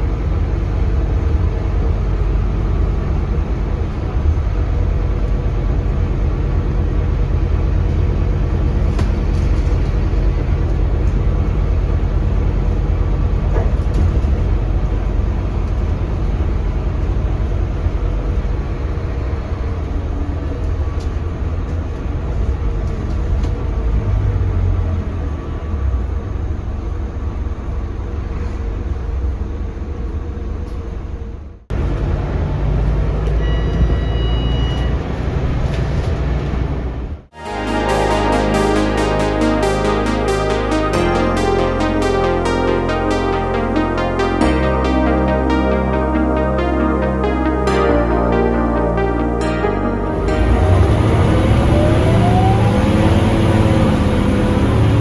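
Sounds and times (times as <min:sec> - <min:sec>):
road noise: 0:00.0 - 0:33.4, 0:50.0 - 0:55.0
bus engine drone: 0:00.0 - 0:55.0.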